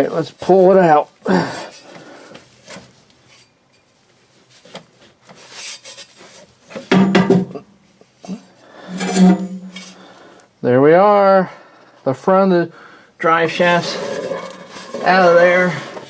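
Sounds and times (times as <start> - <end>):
metal rubbing and scraping: 5.4 - 6.5, 8.2 - 10.2, 13.5 - 16.0
metal knocks: 6.8 - 7.6.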